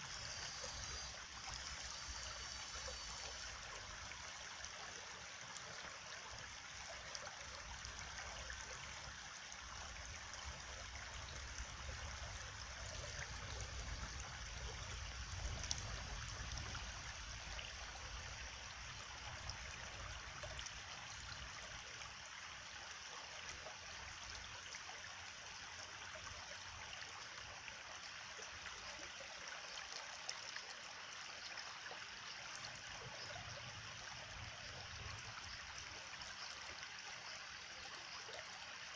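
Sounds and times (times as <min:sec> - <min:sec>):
running water flowing: 0:00.0 - 0:22.8.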